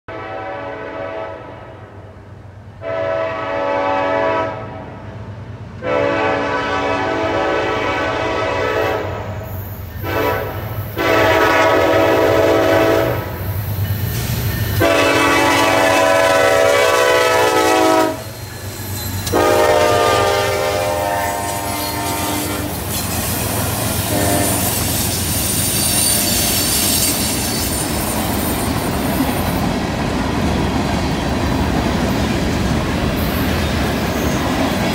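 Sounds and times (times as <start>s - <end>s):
locomotive air horn blasts: 0.1s - 2.0s, 2.8s - 5.0s, 5.8s - 9.4s, 10.0s - 13.4s, 14.8s - 18.3s, 19.3s - 22.8s, 23.8s - 27.0s
rumble of locomotive engines: 0.1s - 34.9s
high hiss of train cars: 0.2s - 34.9s
train wheels on rails: 2.0s - 34.9s.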